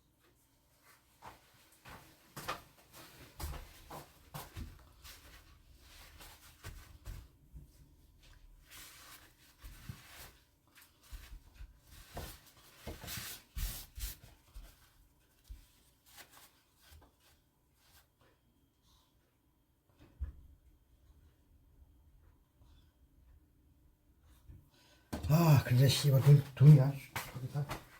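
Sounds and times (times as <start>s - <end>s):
rustling and scraping by hand: 0.2s - 20.4s.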